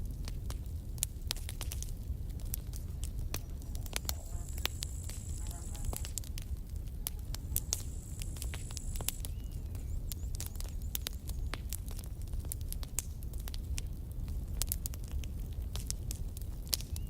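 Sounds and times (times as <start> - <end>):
campfire crackling and popping: 0.0 - 17.0
low rumble: 1.8 - 10.1.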